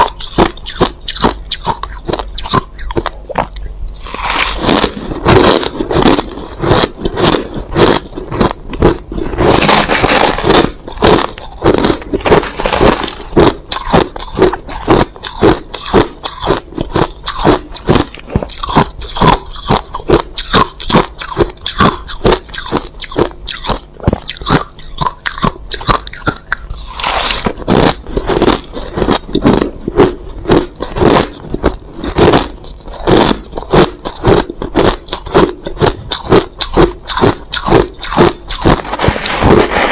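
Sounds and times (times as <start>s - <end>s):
ice being chewed: 0.0s - 39.9s
ice grinding scrapes: 4.0s - 8.1s, 9.1s - 13.3s, 26.8s - 28.9s, 38.0s - 39.9s.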